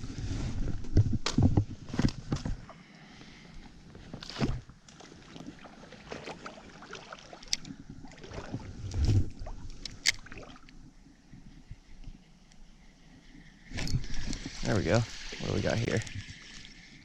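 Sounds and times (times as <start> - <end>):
splashing in shallow stream: 4.2 - 10.7.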